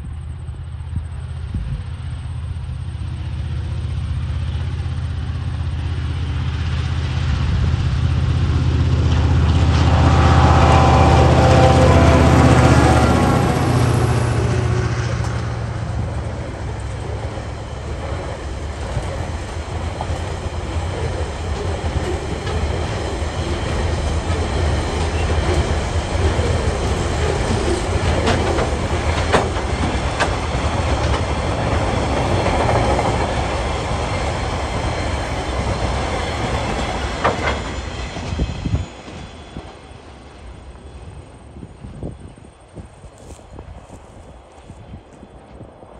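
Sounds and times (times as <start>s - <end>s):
train wheels rumbling on rail: 0.0s - 45.9s.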